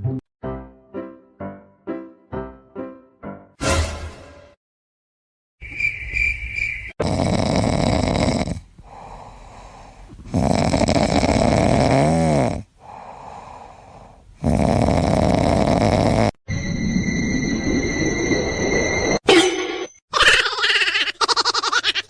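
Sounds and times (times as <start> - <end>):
pet snoring: 7.0 - 16.4.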